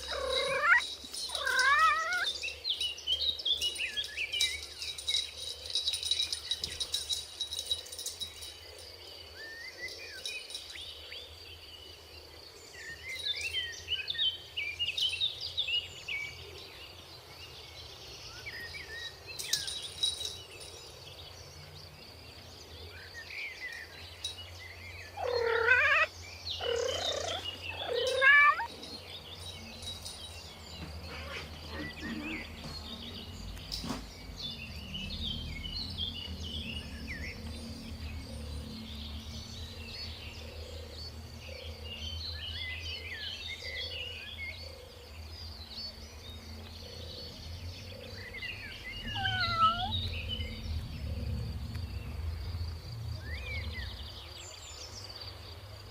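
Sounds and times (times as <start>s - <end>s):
kittens mewing: 0.0s - 2.3s, 25.2s - 28.7s, 49.0s - 50.2s.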